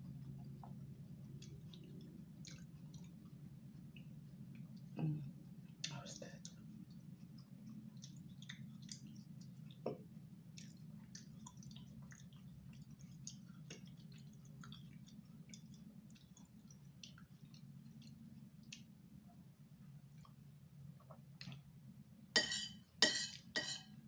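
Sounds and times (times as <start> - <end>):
steady low hum: 0.0 - 24.0
chewing mouth sounds: 0.1 - 18.9.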